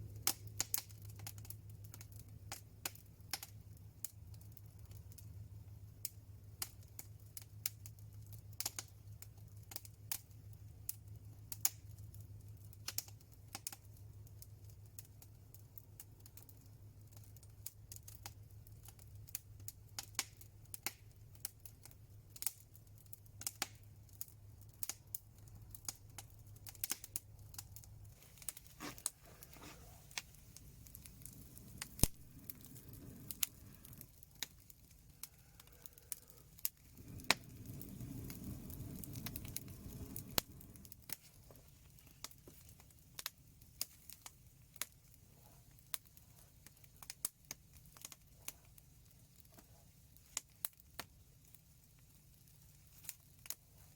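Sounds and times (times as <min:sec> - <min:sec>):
low steady hum: 0:00.0 - 0:02.5, 0:25.3 - 0:43.7
wood fire crackling and popping: 0:00.0 - 0:53.9.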